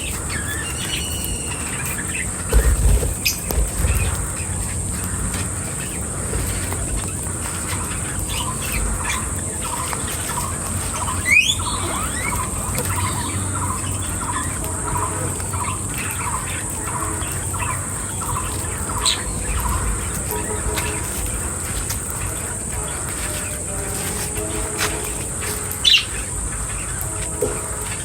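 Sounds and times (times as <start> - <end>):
rising squeal: 0.0 - 4.5
constant high hiss: 0.0 - 28.0.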